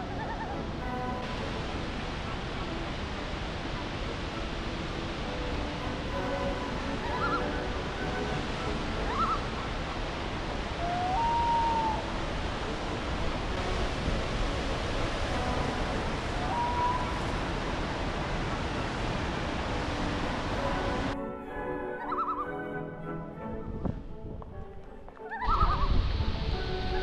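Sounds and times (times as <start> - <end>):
bird chirps and whistles: 7.1 - 7.4, 9.1 - 9.5, 22.0 - 22.5, 25.3 - 25.9.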